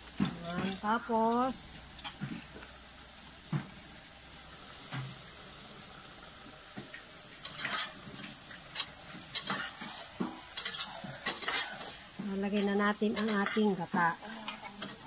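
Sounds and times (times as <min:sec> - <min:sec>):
food sizzling in a pan: 0:00.0 - 0:15.0
metal spatula scraping pan: 0:07.4 - 0:08.0, 0:08.7 - 0:15.0.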